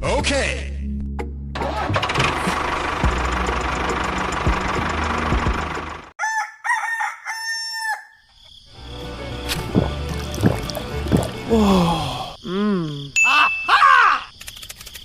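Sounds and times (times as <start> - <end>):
rooster crowing: 6.2 - 8.3.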